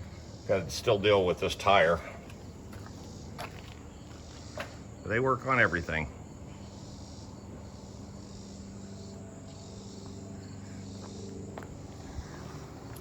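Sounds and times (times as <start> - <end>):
insects chirping: 0.0 - 13.0
low hum: 6.1 - 13.0.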